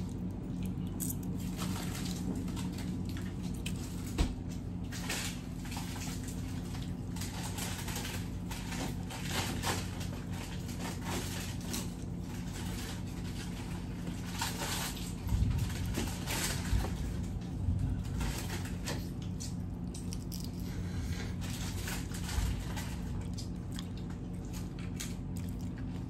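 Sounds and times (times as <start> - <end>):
wet chewing and mouth clicks: 0.0 - 3.9, 19.0 - 20.9, 23.0 - 26.0
steady low hum: 0.0 - 26.0.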